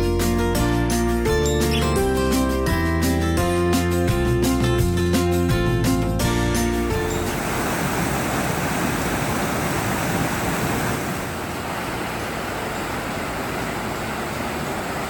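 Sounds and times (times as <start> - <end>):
fast-flowing water roaring: 6.8 - 15.0.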